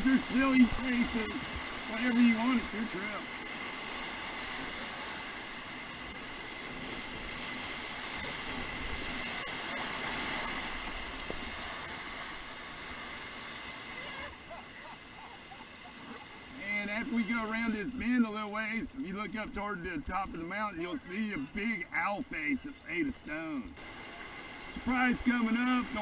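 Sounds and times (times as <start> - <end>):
whitewater rushing and splashing: 0.0 - 26.0.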